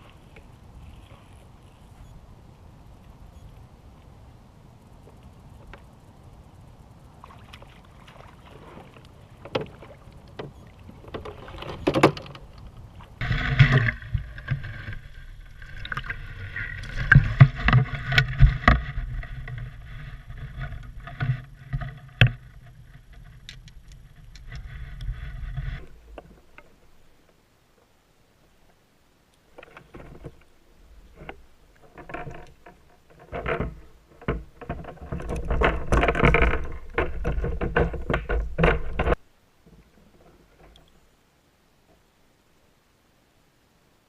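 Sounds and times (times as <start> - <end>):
water sloshing: 7.2 - 22.6.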